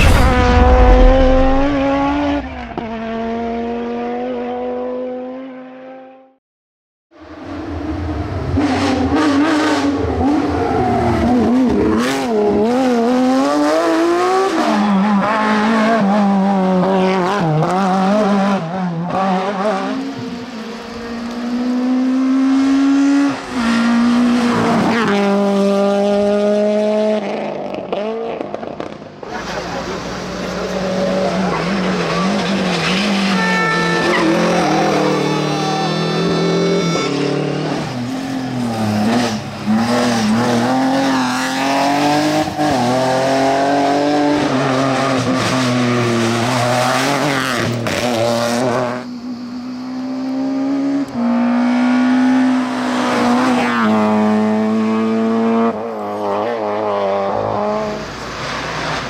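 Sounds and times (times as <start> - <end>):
rally car engine revving: 0.0 - 6.3, 7.4 - 59.0.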